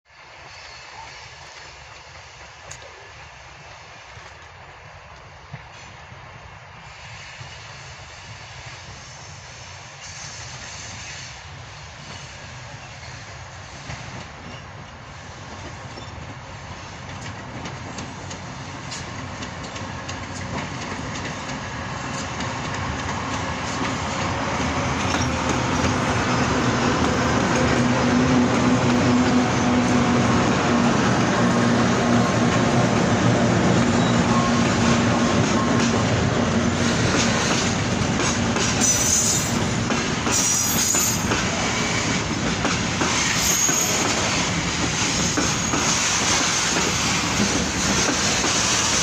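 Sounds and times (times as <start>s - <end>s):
diesel locomotive approaching: 0.1s - 49.0s
train wheels clicking over rail joints: 12.0s - 49.0s.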